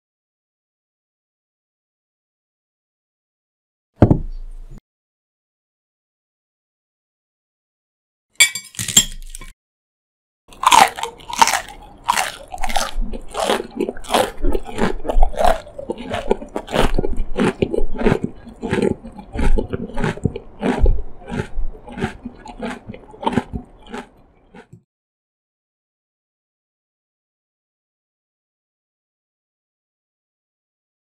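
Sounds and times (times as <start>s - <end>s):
chewing crunchy food: 8.8s - 9.5s, 10.5s - 24.8s.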